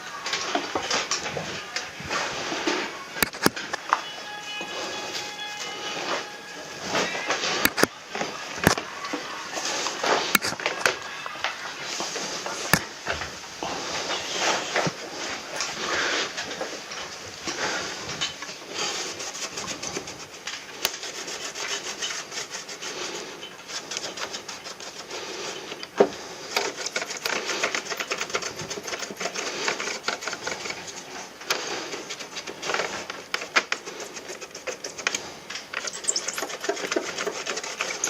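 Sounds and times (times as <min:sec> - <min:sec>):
rubbing and scraping plastic: 0:00.0 - 0:38.0
clicks: 0:03.2 - 0:04.1.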